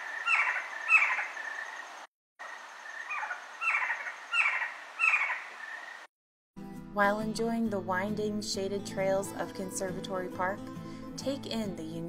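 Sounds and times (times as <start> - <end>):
owl screeching: 0.0 - 1.8, 2.8 - 6.0.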